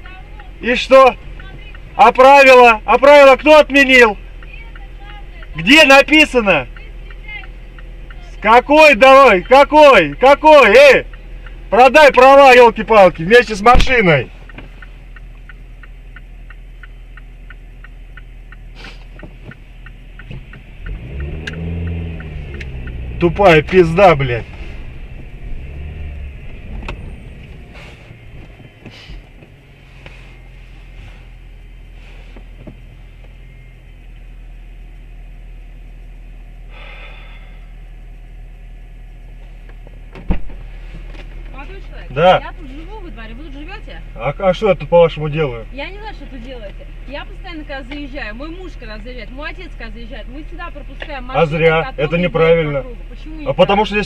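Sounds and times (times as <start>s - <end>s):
car indicator ticking: 0.0s - 54.0s
idling engine hum: 0.0s - 54.0s.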